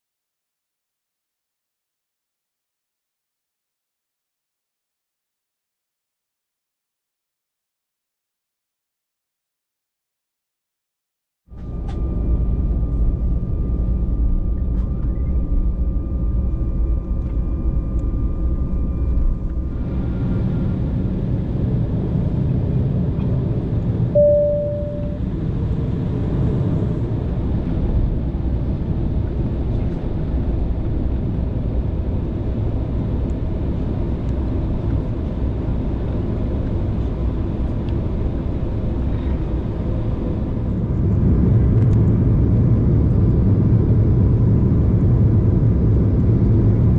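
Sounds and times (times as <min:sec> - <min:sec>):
jet engines rumbling: 0:11.6 - 0:46.9
short single tone: 0:24.1 - 0:25.2.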